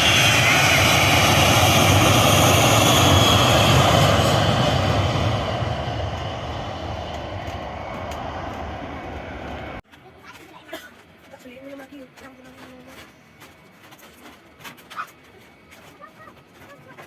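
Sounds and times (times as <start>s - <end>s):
jet airliner engines passing: 0.0s - 9.8s.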